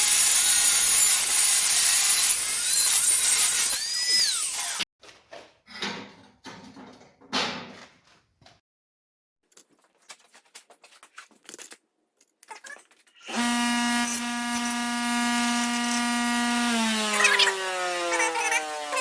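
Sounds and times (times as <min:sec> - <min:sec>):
power tool motor whining: 0:00.0 - 0:04.8, 0:13.3 - 0:19.0.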